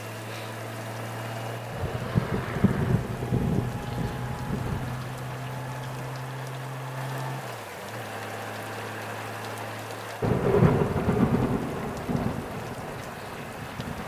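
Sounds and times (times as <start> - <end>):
rain and wind noise on microphone: 0.0 - 14.0
motorcycle engine drone: 0.6 - 8.1, 10.2 - 14.0.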